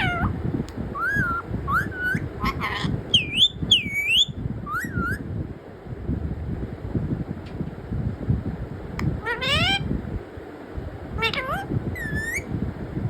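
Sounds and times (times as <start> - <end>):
parrot whistling: 1.0 - 5.2, 11.2 - 12.5.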